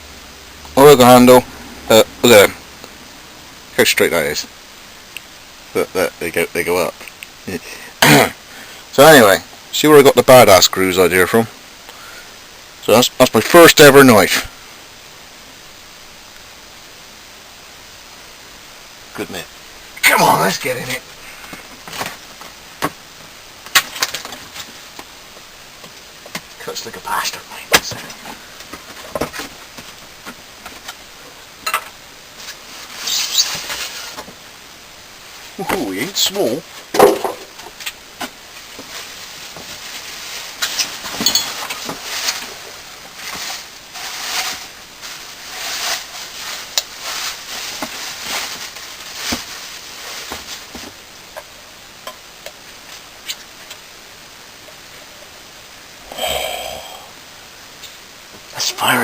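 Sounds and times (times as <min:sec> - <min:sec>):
steady hiss: 0:00.0 - 0:59.0
scraping: 0:39.7 - 0:50.6.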